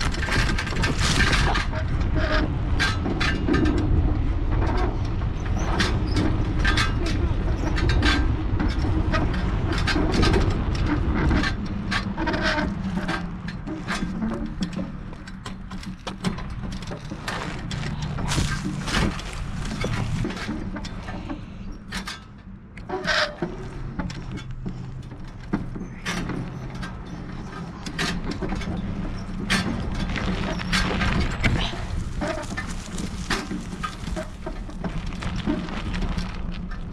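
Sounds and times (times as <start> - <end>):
bike rattles and knocks: 0.0 - 36.9
wind and tyres rumbling: 0.0 - 36.9.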